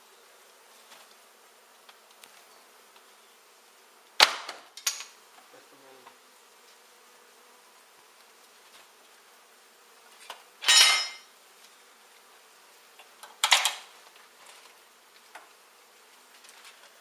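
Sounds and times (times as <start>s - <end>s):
bees buzzing: 0.0s - 17.0s
clattering scrapes of tools: 10.2s - 11.3s.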